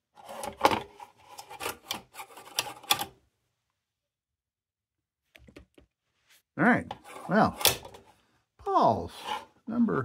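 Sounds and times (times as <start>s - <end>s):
lantern metal clicks and rattles: 7.6s - 8.0s.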